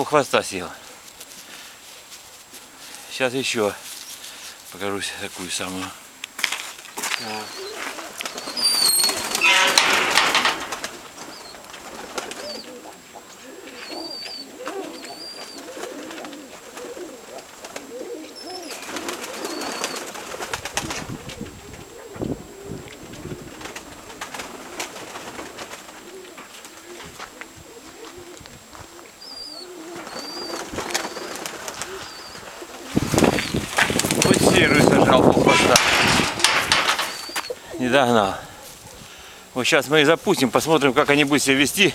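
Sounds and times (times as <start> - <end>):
small bird chirping: 6.9 - 9.8, 13.7 - 15.7, 29.1 - 32.5, 37.0 - 37.7
pigeons cooing: 7.0 - 39.5.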